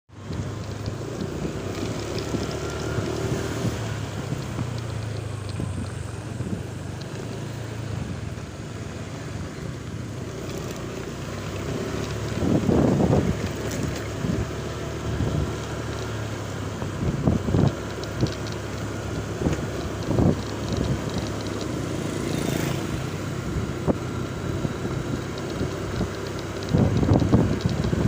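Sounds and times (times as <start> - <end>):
vehicle engine running: 0.1 - 28.0
wind on microphone: 12.2 - 15.6, 16.8 - 18.4, 19.0 - 28.0.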